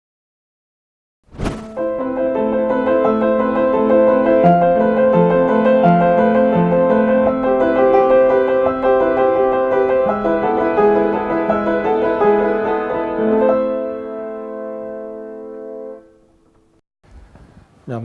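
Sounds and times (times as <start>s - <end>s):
solo piano music: 1.8s - 16.8s.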